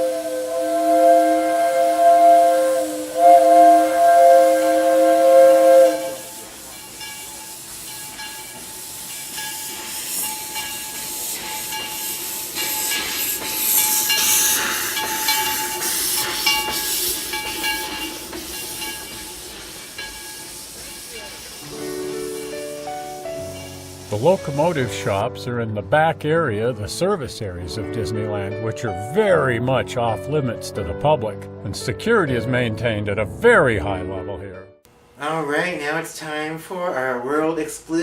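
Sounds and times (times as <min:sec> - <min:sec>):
steam hissing: 0:00.0 - 0:25.3
steam locomotive whistle: 0:00.0 - 0:25.3.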